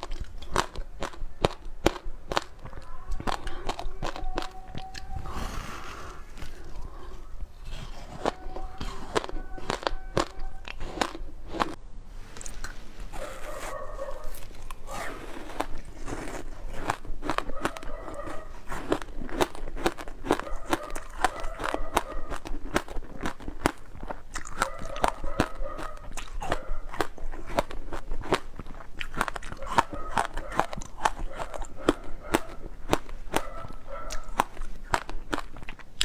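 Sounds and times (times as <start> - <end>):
crunching frozen ice: 0.0 - 11.8, 12.4 - 36.0.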